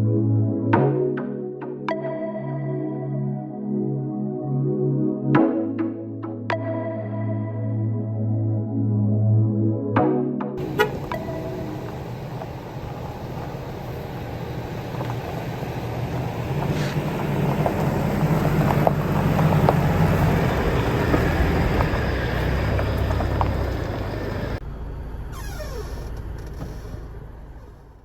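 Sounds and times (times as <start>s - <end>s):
vehicle engine rumbling: 10.6s - 28.0s.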